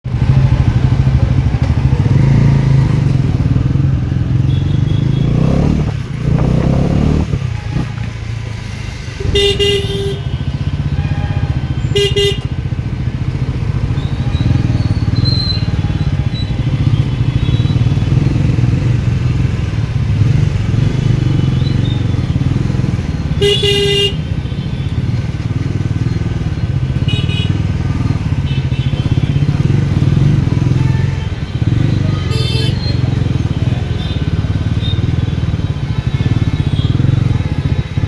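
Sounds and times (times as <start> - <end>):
motorcycle engine running: 0.0 - 38.0
vehicle horn honking: 4.4 - 5.7, 6.6 - 12.7, 13.9 - 18.2, 23.3 - 25.2, 27.0 - 35.2.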